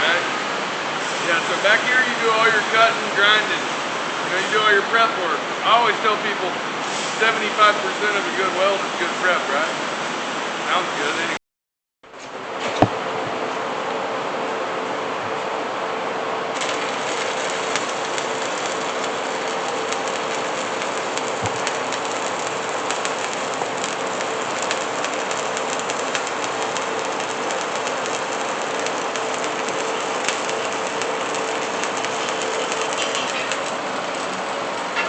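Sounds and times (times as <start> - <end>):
welding arc crackling: 16.6 - 34.9.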